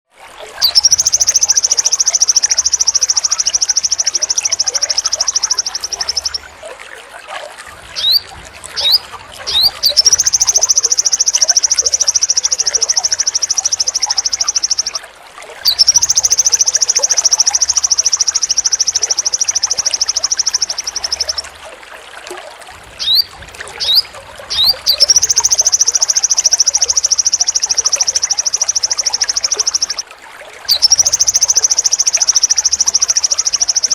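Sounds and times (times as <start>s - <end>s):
bird trilling: 0.6s - 6.5s, 7.9s - 15.0s, 15.7s - 21.5s, 23.0s - 30.0s, 30.7s - 33.9s
rising bird chirps: 0.6s - 6.5s, 8.0s - 15.0s, 15.7s - 21.4s, 23.0s - 30.0s.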